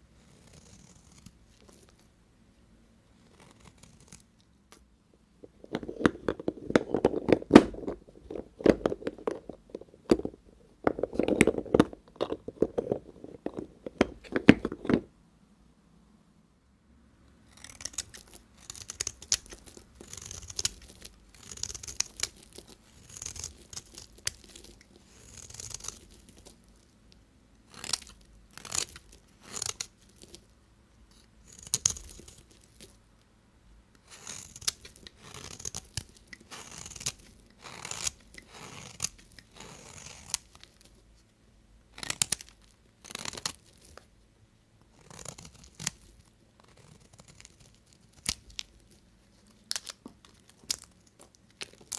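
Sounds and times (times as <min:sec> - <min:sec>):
knife cutting soap: 0:17.5 - 0:26.6, 0:27.6 - 0:30.4, 0:34.0 - 0:40.9, 0:41.9 - 0:44.1.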